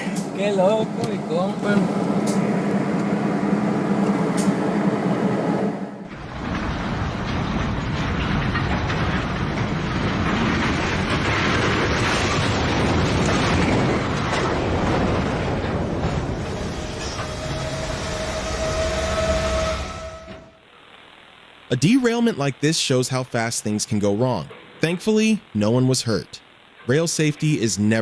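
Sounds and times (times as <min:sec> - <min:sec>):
train rumbling on rails: 0:00.0 - 0:20.6.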